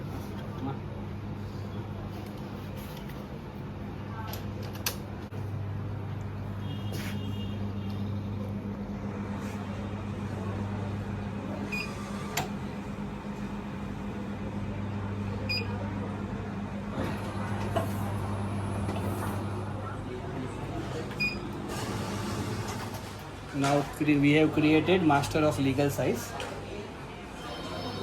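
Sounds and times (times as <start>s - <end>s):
duplicator machine humming: 5.3s - 26.2s.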